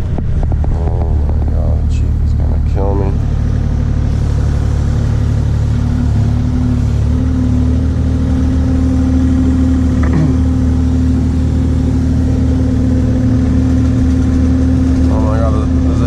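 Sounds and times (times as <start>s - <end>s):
excavator diesel engine running: 0.0s - 16.0s
short falling whine: 0.0s - 16.0s.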